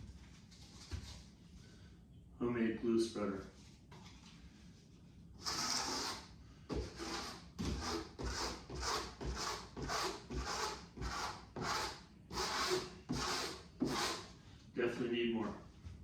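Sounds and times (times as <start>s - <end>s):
glue spreader scraping plywood: 5.4s - 14.3s.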